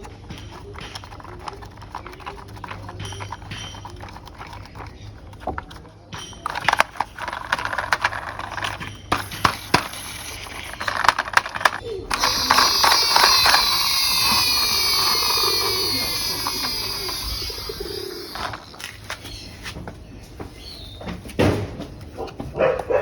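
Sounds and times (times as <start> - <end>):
plastic toy parts clicking: 0.0 - 19.2
falling whistle-like tones: 12.1 - 18.8.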